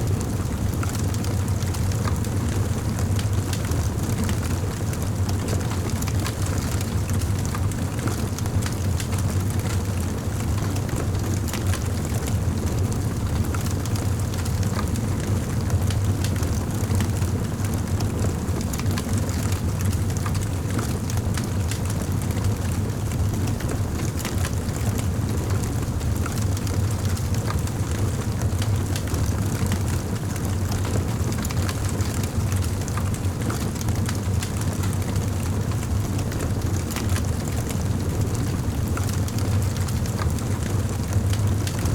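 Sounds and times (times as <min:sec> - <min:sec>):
wood fire crackling and popping: 0:13.4 - 0:41.9.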